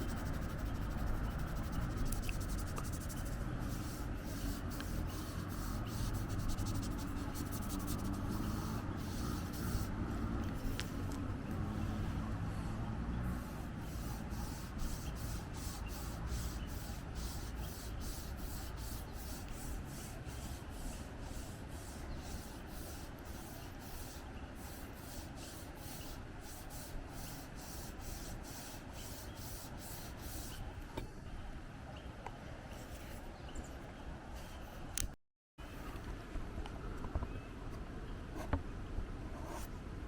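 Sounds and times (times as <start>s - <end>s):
pencil scribbling on paper: 0.0s - 12.0s, 13.3s - 30.6s.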